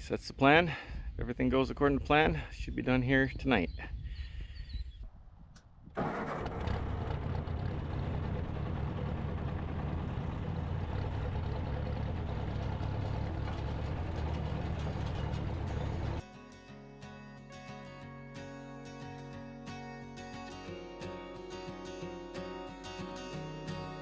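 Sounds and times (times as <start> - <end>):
tractor engine running: 6.0 - 16.2.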